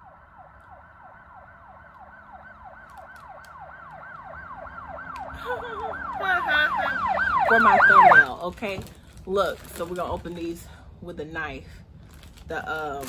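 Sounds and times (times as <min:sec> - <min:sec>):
siren falling sweeps: 0:00.0 - 0:08.4.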